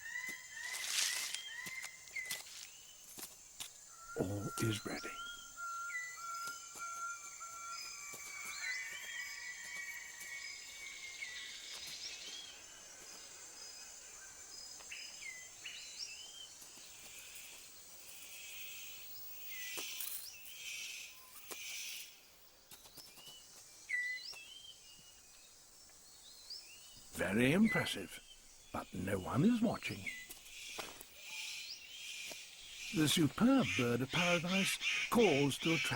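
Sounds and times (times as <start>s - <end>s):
birds chirping: 0.0s - 35.9s
high insect drone: 0.1s - 22.4s.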